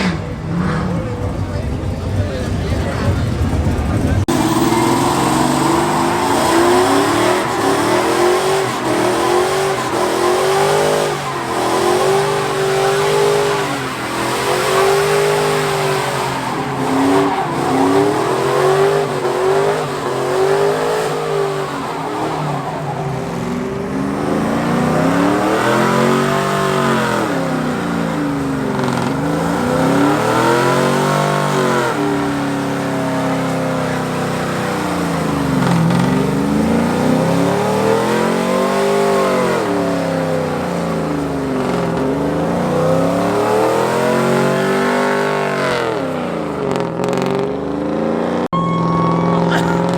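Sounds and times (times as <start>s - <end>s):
truck engine revving: 0.0s - 49.9s.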